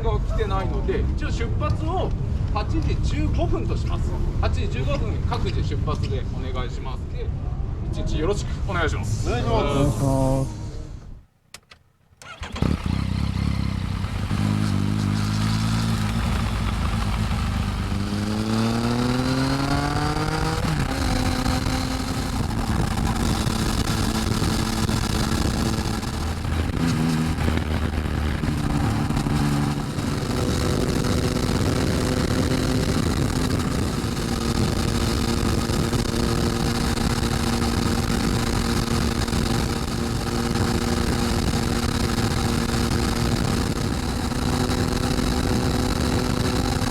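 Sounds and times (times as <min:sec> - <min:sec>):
motorcycle exhaust accelerating: 0:12.2 - 0:46.9.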